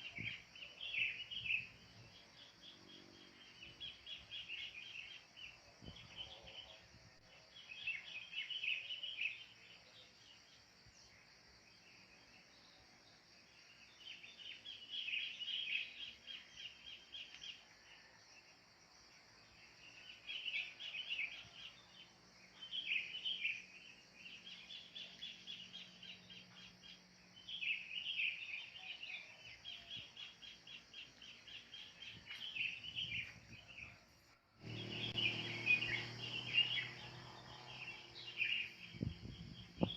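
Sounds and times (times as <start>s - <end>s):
birds chattering: 34.6s - 39.9s.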